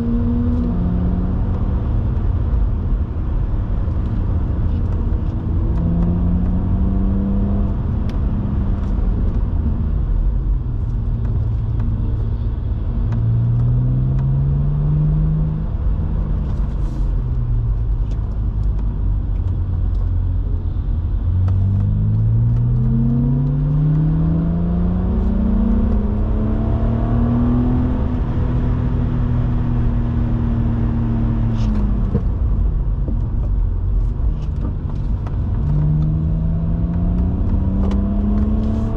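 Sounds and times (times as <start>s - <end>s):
car engine revving through upshifts: 0.0s - 2.1s, 3.9s - 9.3s, 13.0s - 16.9s, 21.3s - 32.2s, 35.4s - 38.9s
road and tyre rumble: 0.0s - 38.9s.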